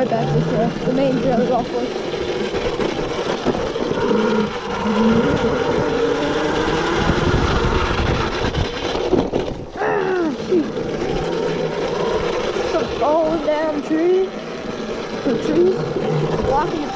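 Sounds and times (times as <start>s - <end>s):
dirt bike riding noise: 0.0s - 16.9s
electric motor whine: 0.0s - 16.9s.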